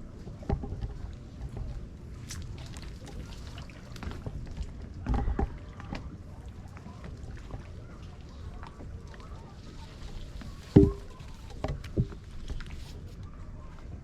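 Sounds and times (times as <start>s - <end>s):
water lapping against hull: 0.0s - 14.0s
knocks on plastic kayak hull: 10.7s - 12.2s.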